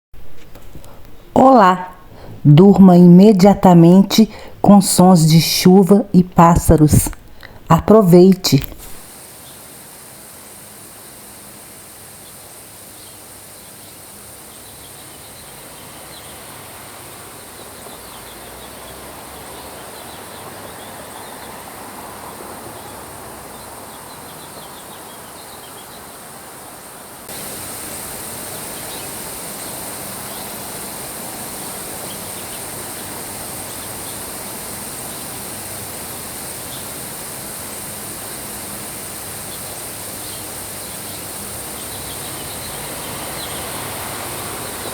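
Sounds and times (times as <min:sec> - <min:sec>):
loud high hiss: 0:00.2 - 0:44.9
steady rain: 0:08.6 - 0:44.9
small birds chirping: 0:12.1 - 0:44.9.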